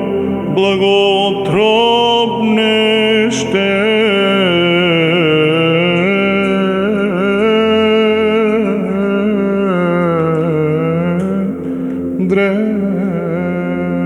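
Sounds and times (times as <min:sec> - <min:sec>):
church chant: 0:00.0 - 0:14.0.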